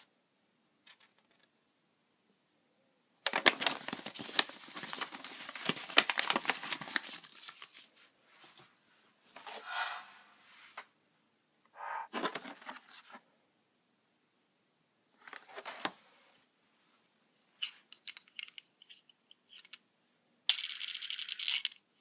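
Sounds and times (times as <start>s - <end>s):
packaging tearing and crinkling: 3.3s - 7.7s.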